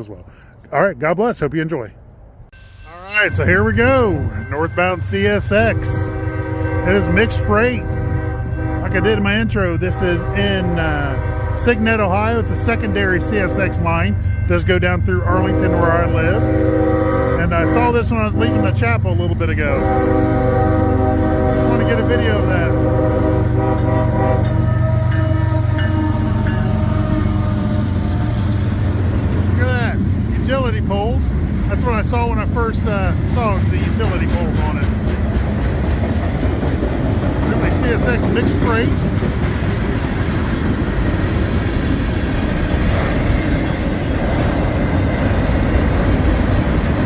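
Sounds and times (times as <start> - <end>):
locomotive air horn: 2.6 - 14.3, 15.3 - 28.9
locomotive low rumble: 2.7 - 47.0
freight train wheels rolling: 17.3 - 47.0.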